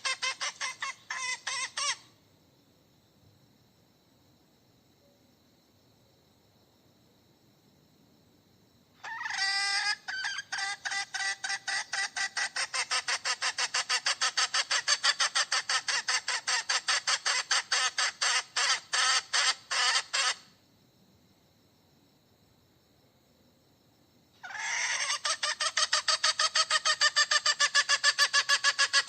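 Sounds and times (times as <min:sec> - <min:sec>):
hen cackling: 0:00.0 - 0:02.1, 0:09.0 - 0:20.5, 0:24.4 - 0:29.0.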